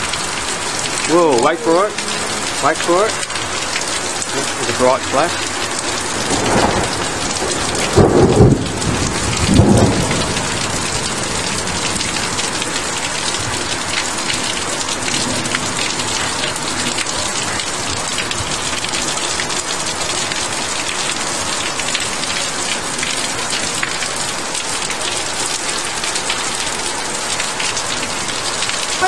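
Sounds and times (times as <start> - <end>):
torrential rain pouring: 0.0 - 29.0
thunderclap crack and rumble: 5.4 - 19.0.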